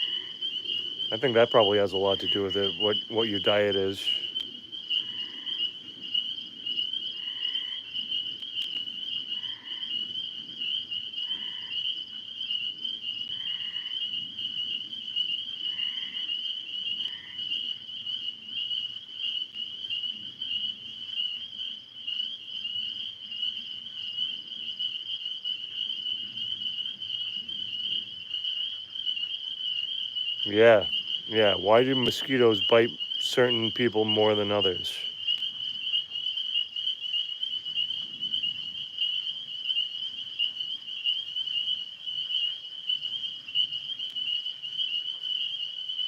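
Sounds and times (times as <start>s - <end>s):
high-pitched insect trill: 0.0s - 46.0s
short repeated frog call: 2.7s - 6.3s, 9.3s - 10.1s, 11.2s - 11.9s, 15.6s - 17.8s.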